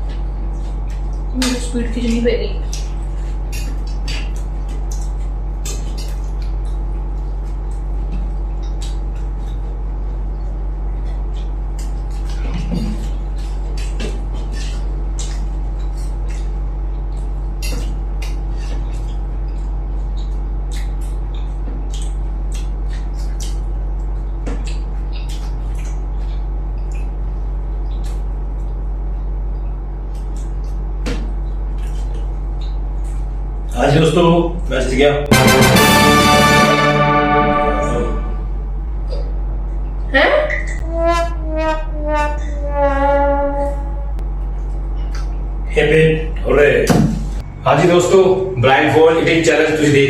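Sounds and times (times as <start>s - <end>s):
wet chewing and lip-smacking: 0.0s - 1.6s, 2.5s - 33.8s, 44.2s - 45.6s
steady low hum: 0.0s - 50.0s.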